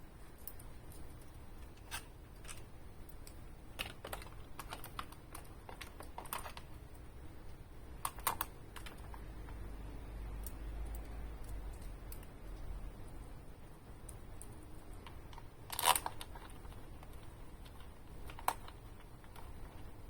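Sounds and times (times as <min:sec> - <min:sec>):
small hard parts clicking: 0:00.4 - 0:06.9, 0:08.0 - 0:09.6, 0:14.0 - 0:20.0.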